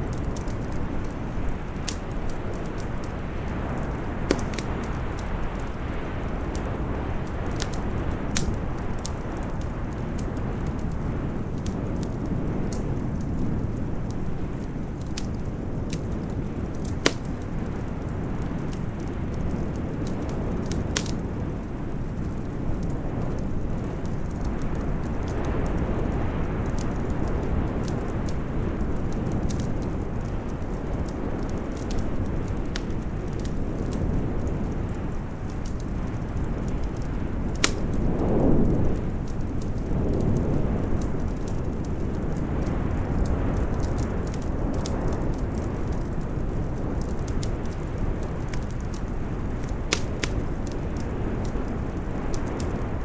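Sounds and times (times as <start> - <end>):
storm wind rushing: 0.0 - 53.0
wood fire crackling: 0.0 - 53.0.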